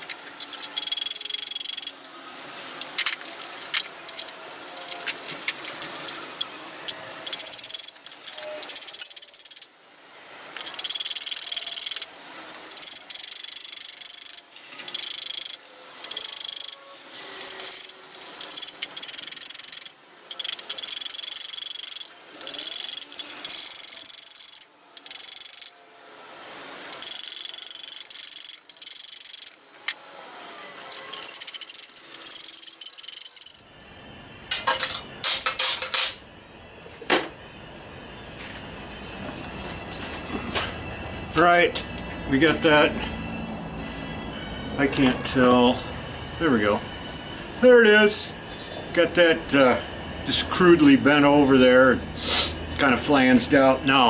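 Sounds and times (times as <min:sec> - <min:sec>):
hand saw cutting metal tubing: 0:02.8 - 0:09.7, 0:10.6 - 0:12.1, 0:12.7 - 0:25.8, 0:26.9 - 0:30.0, 0:30.7 - 0:33.7.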